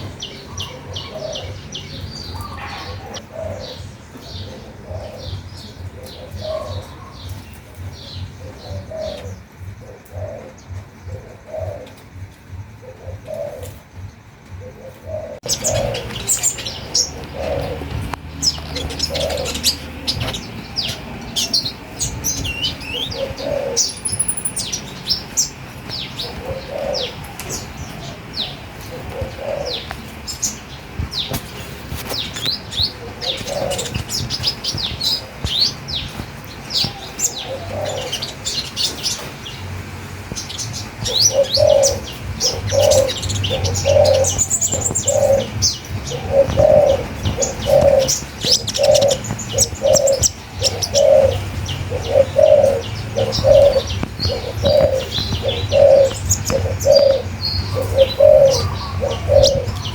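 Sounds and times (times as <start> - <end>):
birds chirping and twittering: 0.0 - 59.9
low cooing call: 8.2 - 25.3, 26.1 - 30.1, 41.0 - 59.9.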